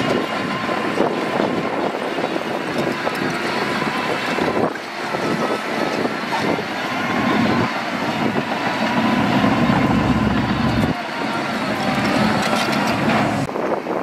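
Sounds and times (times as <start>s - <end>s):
diesel construction machinery engine: 0.0s - 14.0s.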